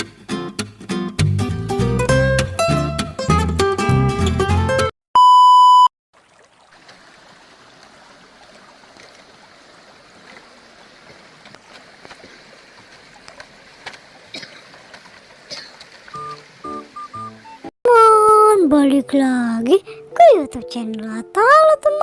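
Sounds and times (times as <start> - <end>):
electronic beep: 5.2 - 5.9
river stream flowing: 6.2 - 17.7.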